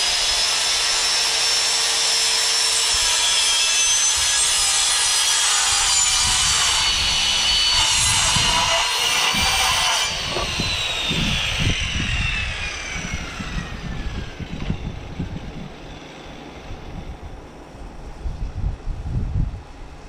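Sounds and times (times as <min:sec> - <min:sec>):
saw blade winding down: 0:00.0 - 0:16.9
power saw cutting wood: 0:00.0 - 0:17.1
wind noise on microphone: 0:04.0 - 0:20.0.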